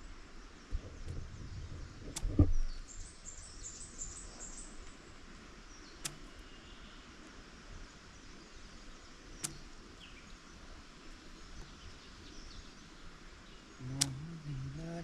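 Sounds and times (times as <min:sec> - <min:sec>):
sharp clicks: 0:02.0 - 0:02.7, 0:05.9 - 0:06.5, 0:09.1 - 0:15.0
person speaking: 0:13.8 - 0:15.0.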